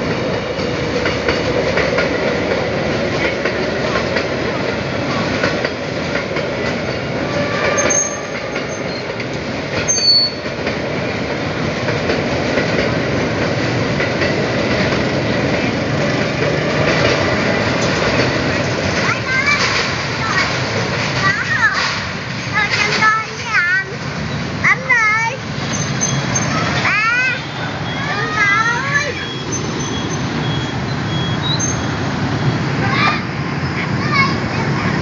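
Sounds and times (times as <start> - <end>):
train rumble and clatter: 0.0 - 35.0
high-pitched wheel squeals: 7.4 - 9.2, 9.9 - 10.5, 25.7 - 32.5.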